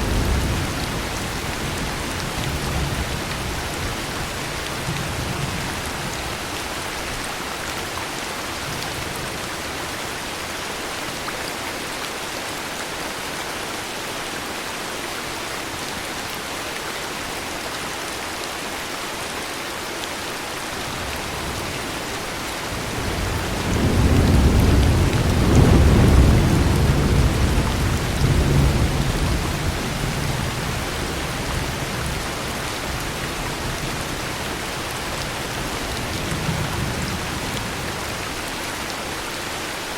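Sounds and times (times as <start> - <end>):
low rumble of thunder: 0.0 - 6.3, 21.0 - 38.2
heavy rain hissing: 20.2 - 39.9.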